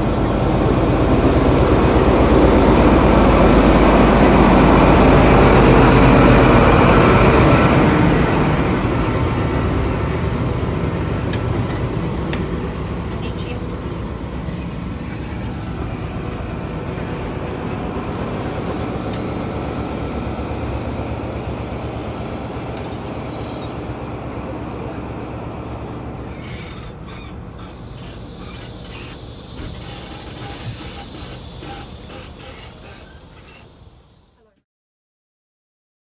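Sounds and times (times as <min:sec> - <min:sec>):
train wheels rumbling on rail: 0:00.0 - 0:34.6
train clicks and clanks: 0:10.0 - 0:24.2, 0:26.2 - 0:34.5.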